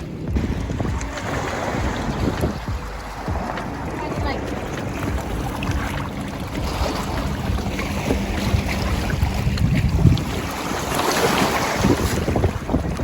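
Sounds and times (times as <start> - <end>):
low steady hum: 0.0 - 10.2
wind buffeting the microphone: 0.0 - 13.0.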